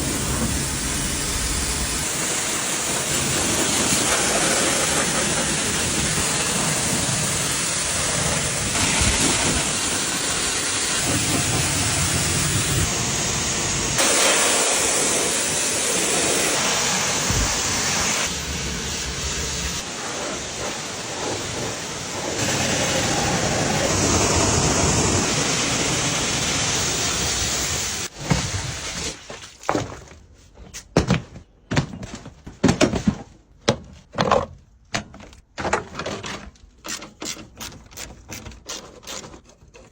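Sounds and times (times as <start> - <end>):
pressure washer jet hissing: 0.0 - 28.1.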